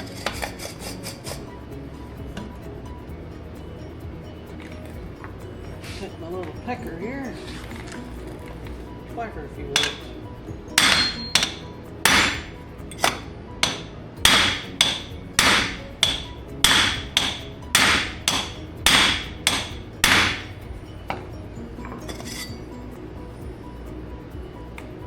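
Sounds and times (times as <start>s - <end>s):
hammer striking metal: 9.8s - 10.2s, 10.8s - 20.6s.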